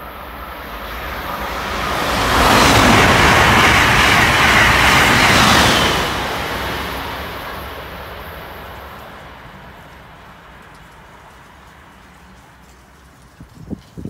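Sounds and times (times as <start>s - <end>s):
train wheel and rail noise: 0.0s - 14.0s.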